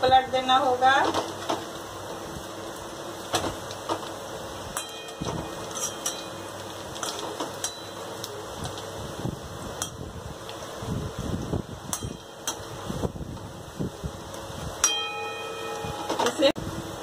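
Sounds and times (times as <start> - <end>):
fritters sizzling in hot oil: 0.0 - 17.0
metal spoon scraping pan: 4.8 - 7.9.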